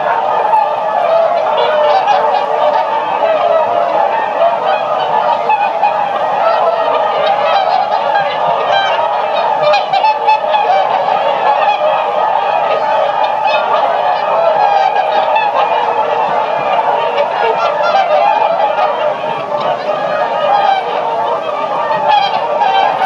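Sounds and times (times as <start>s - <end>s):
swans honking: 0.0s - 23.0s.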